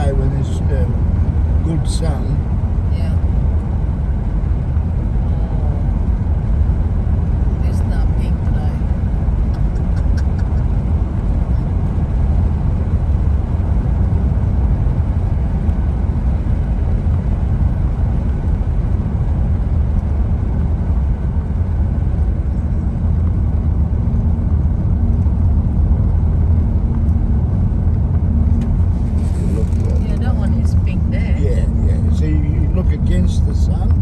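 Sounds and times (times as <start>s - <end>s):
car engine hum: 0.0s - 34.0s
tyre noise on road: 8.8s - 34.0s.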